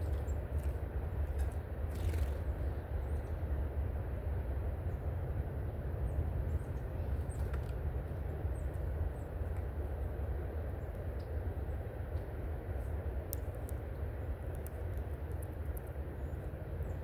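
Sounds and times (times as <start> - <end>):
small birds chirping: 0.0 - 3.5, 6.0 - 9.7
steady low rumble: 0.0 - 17.0.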